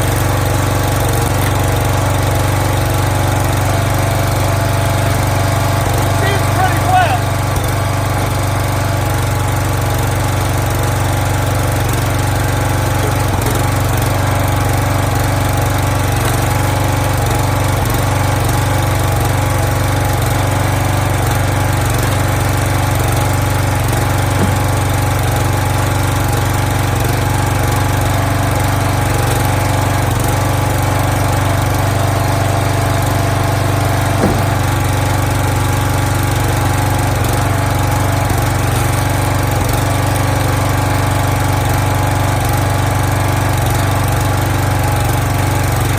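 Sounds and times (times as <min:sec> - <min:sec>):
small gasoline engine running: 0:00.0 - 0:45.9
faint knocks: 0:24.4 - 0:25.0, 0:34.1 - 0:35.0.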